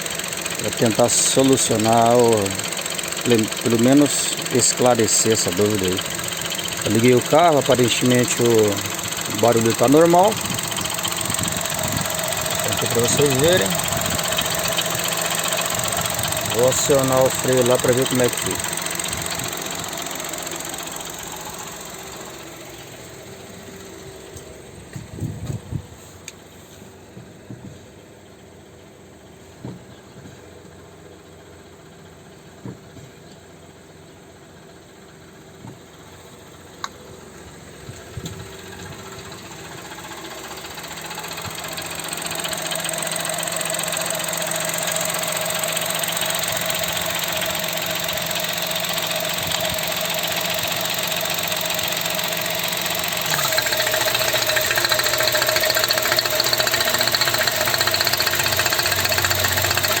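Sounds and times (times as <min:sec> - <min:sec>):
rapid ticking clatter: 0:00.0 - 0:23.0, 0:37.8 - 1:00.0
engine idling: 0:00.0 - 1:00.0.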